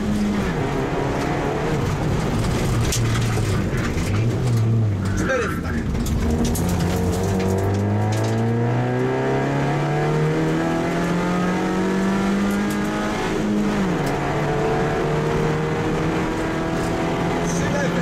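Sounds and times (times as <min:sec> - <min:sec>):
car engine revving under load: 0:00.0 - 0:18.0.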